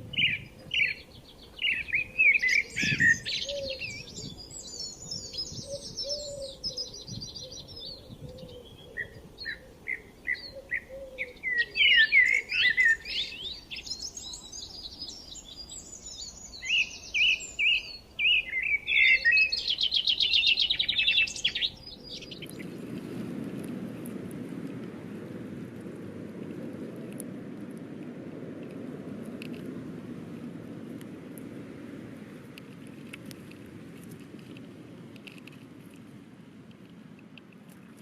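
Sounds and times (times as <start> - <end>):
songbirds chirping and singing: 0.0 - 22.8.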